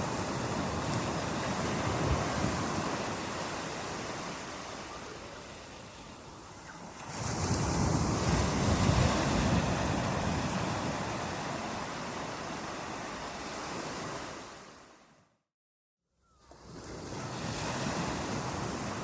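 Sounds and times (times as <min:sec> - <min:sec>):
ocean wave breaking: 0:06.8 - 0:14.8.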